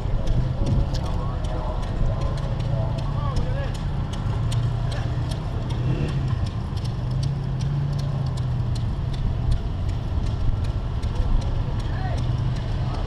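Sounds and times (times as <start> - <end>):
engine humming: 0.0 - 13.0
regular clicking: 0.0 - 13.0.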